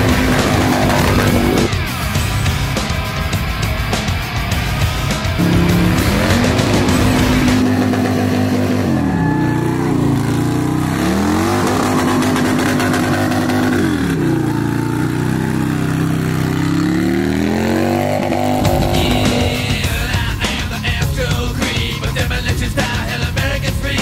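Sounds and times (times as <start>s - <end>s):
motorcycle engine revving hard: 0.0s - 2.9s, 5.4s - 20.5s.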